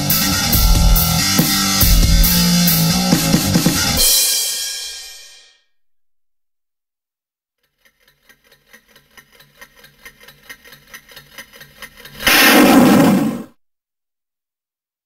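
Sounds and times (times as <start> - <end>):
fast ticking: 7.6 - 12.3
explosion sound effect: 12.2 - 13.5.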